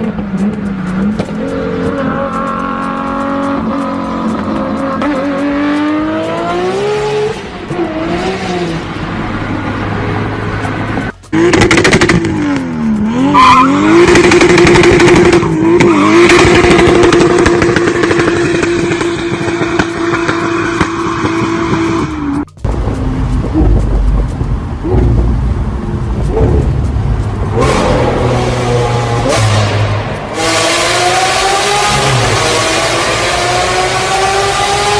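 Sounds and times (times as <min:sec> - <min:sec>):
car engine revving: 0:00.0 - 0:34.9
exhaust crackles and pops: 0:10.6 - 0:13.1, 0:13.7 - 0:33.6.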